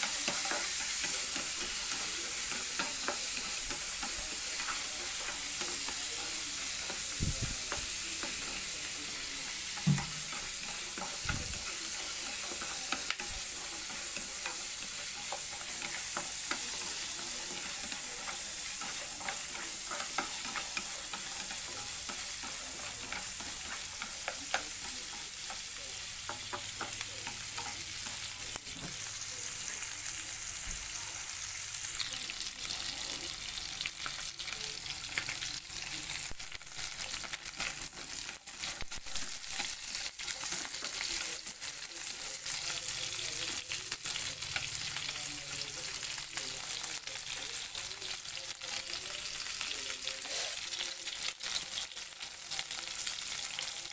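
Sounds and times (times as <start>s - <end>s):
food sizzling in a pan: 0.0s - 53.9s
knock on pan: 9.8s - 10.3s.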